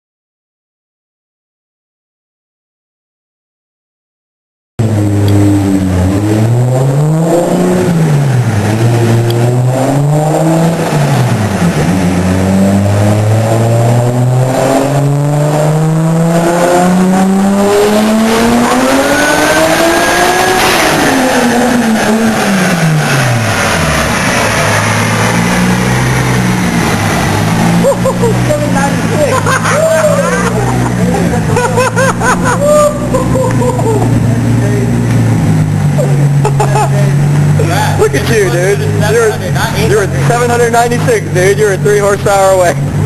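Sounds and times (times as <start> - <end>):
car engine revving on dyno: 4.8 - 43.0.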